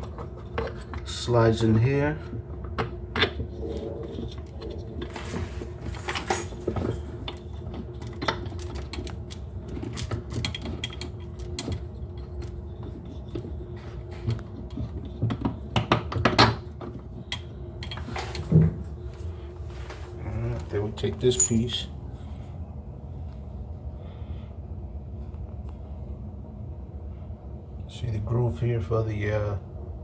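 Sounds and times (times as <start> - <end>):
steady low hum: 0.0 - 30.0
small metal parts clinking: 5.1 - 13.2, 21.2 - 21.8.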